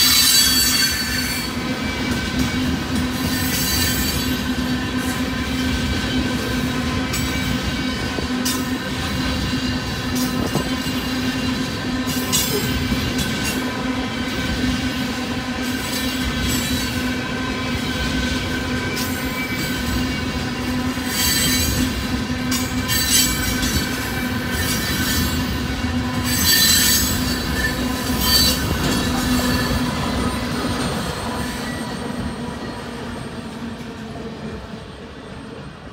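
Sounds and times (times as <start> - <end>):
freight train rolling past: 0.0 - 35.9
wheels squealing: 22.6 - 32.8.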